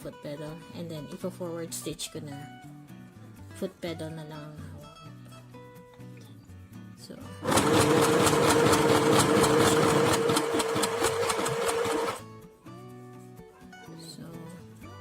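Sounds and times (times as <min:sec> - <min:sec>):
quiet background music: 0:00.0 - 0:10.1, 0:10.8 - 0:15.0
sewing machine stitching: 0:07.4 - 0:12.2.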